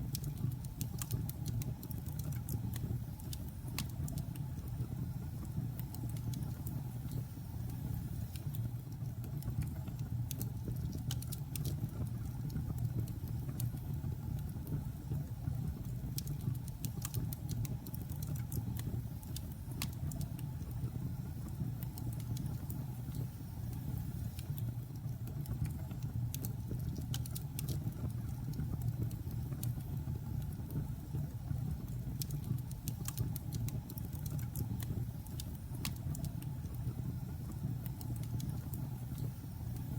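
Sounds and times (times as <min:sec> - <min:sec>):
logs crackling and popping: 0:24.4 - 0:29.8.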